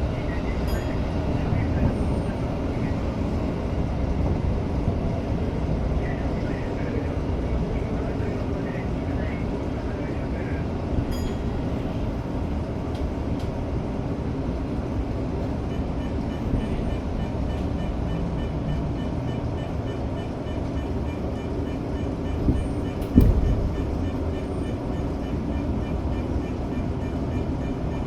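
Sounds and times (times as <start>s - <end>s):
train rumbling: 0.0s - 28.0s
loud knock: 23.0s - 24.2s.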